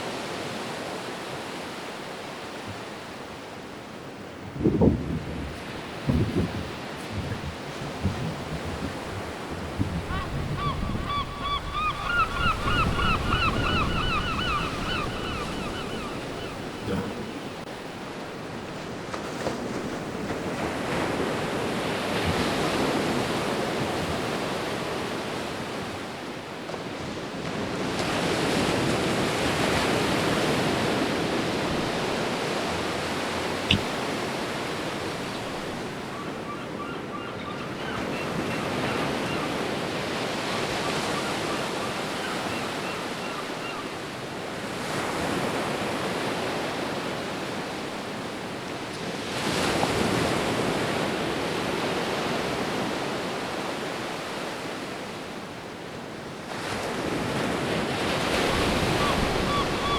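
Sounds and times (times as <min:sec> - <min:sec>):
sea waves surging: 0:00.0 - 0:36.8
wind on microphone: 0:04.4 - 0:17.7.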